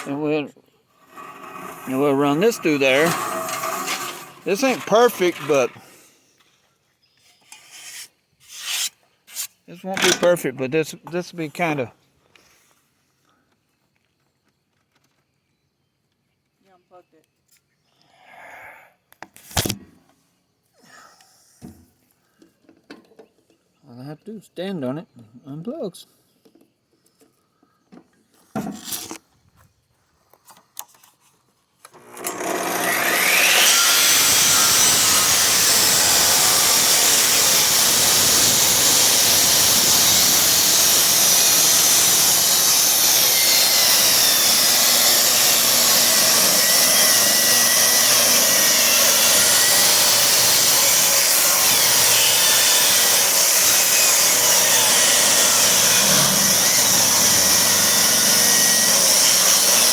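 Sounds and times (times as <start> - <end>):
table saw cutting wood: 0.0 - 0.4, 1.0 - 5.9, 32.0 - 59.9.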